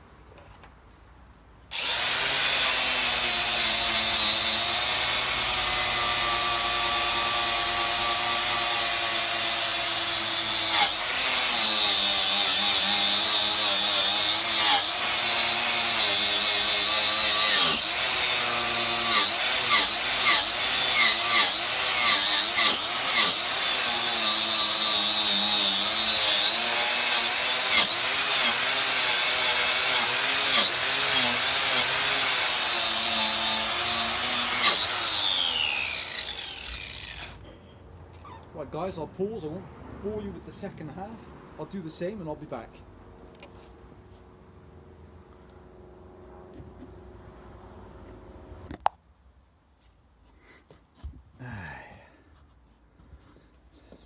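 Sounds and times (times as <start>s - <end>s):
wire brush grinding steel: 1.8s - 37.4s.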